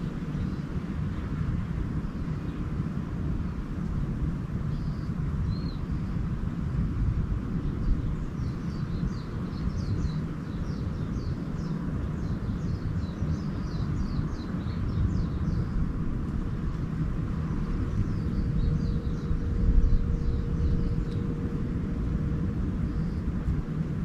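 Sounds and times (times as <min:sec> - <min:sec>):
small birds chirping: 0:04.7 - 0:06.2, 0:07.6 - 0:21.7, 0:22.7 - 0:24.0
low rumble: 0:15.0 - 0:24.0.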